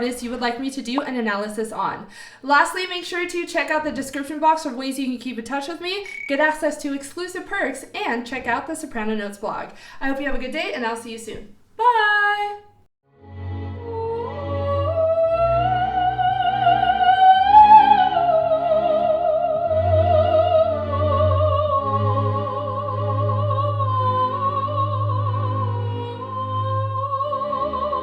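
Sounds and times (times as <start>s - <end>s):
soprano singing operatically: 11.8s - 12.7s, 13.8s - 28.0s.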